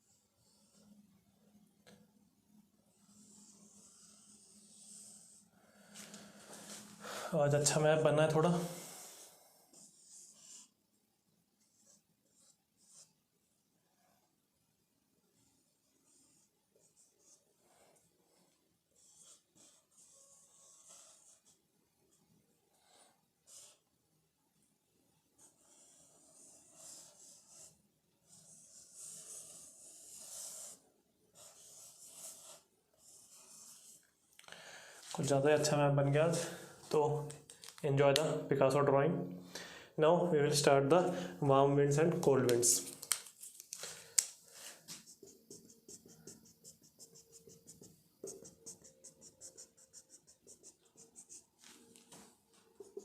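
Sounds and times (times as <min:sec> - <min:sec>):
marker squeaking on whiteboard: 0:28.4 - 0:30.8, 0:31.4 - 0:34.0, 0:44.9 - 0:53.0.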